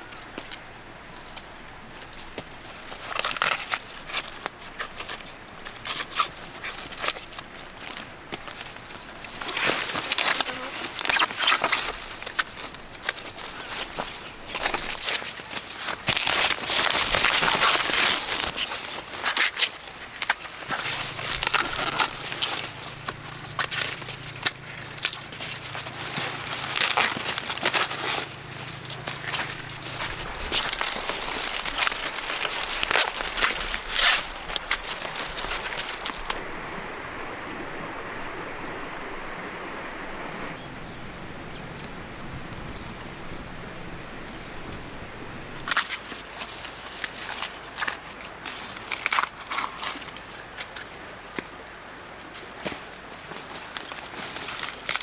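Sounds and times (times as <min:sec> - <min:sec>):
dry corn leaves rustling: 0:00.0 - 0:40.6, 0:42.0 - 0:55.0
steady hiss: 0:00.0 - 0:55.0
bird chirping: 0:40.1 - 0:44.6.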